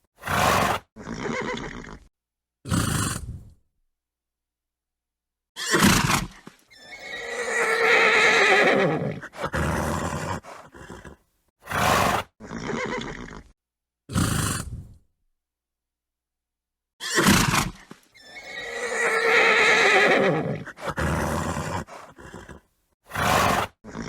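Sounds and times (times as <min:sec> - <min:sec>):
horse whinnying and neighing: 0:00.2 - 0:02.1, 0:05.6 - 0:13.5, 0:17.0 - 0:24.0.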